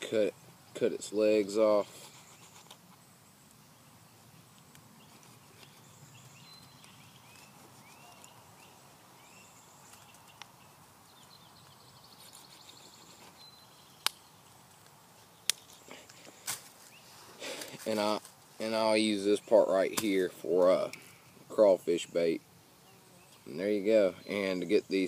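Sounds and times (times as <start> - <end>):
faint bird chirps: 1.9 - 14.5
bird trill: 5.0 - 10.4.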